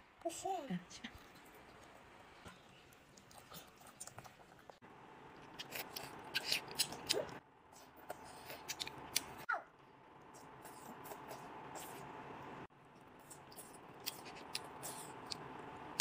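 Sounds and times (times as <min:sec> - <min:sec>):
crunchy food being chewed: 0:01.2 - 0:04.8, 0:05.4 - 0:09.4, 0:13.0 - 0:15.4.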